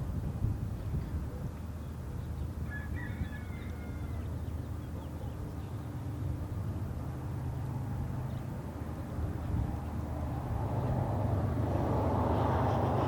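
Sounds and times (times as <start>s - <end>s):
diesel locomotive rumble: 4.4s - 13.0s.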